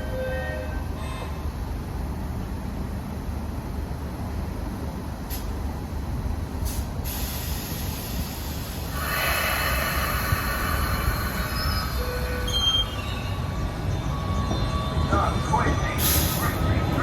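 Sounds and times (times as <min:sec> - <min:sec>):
train rumbling on tracks: 0:00.0 - 0:17.0
high hiss: 0:07.1 - 0:12.0.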